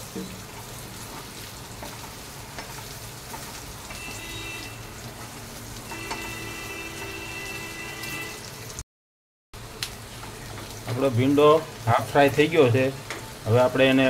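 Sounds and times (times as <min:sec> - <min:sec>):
okra sizzling in hot oil: 0:00.0 - 0:08.8, 0:09.6 - 0:14.0
spatula stirring in pan: 0:00.2 - 0:07.2.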